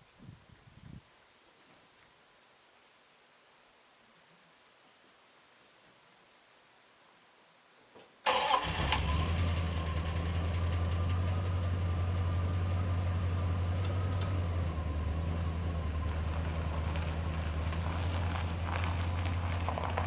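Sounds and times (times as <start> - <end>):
truck engine starting and idling: 8.2 - 20.0.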